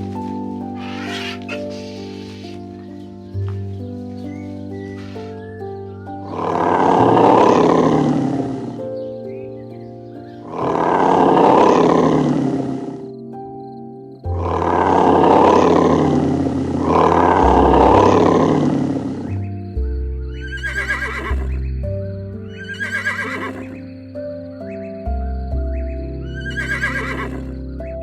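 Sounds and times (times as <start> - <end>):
background music: 0.0 - 28.0
rough animal calls: 0.7 - 2.9, 5.0 - 8.8, 16.8 - 19.6, 20.3 - 21.9, 22.5 - 23.8, 25.7 - 28.0
wavering whinny-like calls: 0.8 - 2.6, 20.3 - 21.6, 22.5 - 23.8, 26.3 - 27.4.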